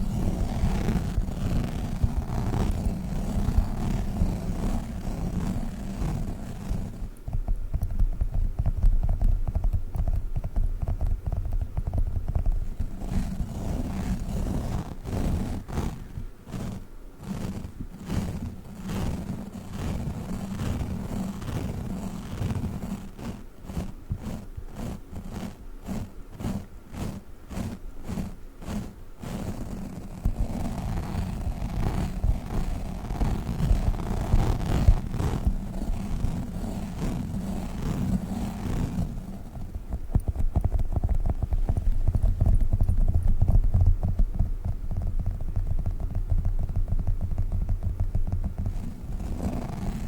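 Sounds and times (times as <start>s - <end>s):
steady low hum: 0.0s - 50.0s
sticky toy ball being handled: 0.0s - 50.0s
rapid taps of squishy toys: 5.3s - 13.8s, 39.6s - 50.0s.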